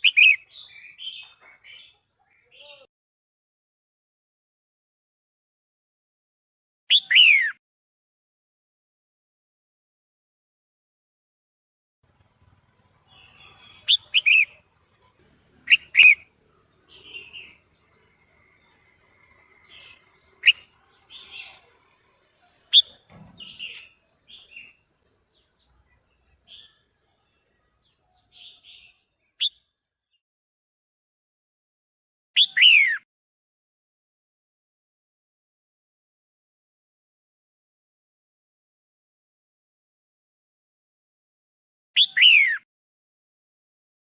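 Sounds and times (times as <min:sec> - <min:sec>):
bird chirping sharply: 0:00.0 - 0:02.9, 0:12.2 - 0:26.8
soft bird chattering: 0:00.0 - 0:02.9, 0:13.0 - 0:17.9, 0:19.7 - 0:21.7.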